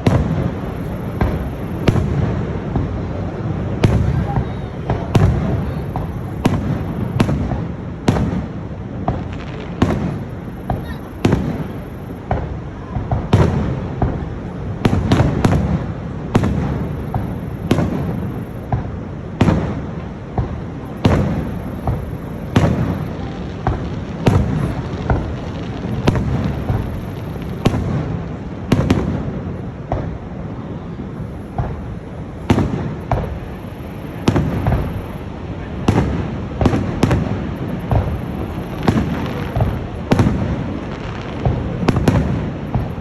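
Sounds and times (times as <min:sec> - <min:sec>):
continuous low rumble: 0:00.0 - 0:43.0
fireworks bursting: 0:00.0 - 0:43.0.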